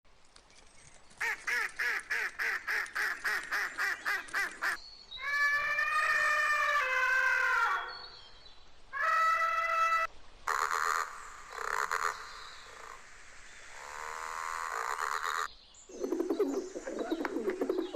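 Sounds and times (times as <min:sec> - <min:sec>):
long steady animal call: 0:08.9 - 0:17.9.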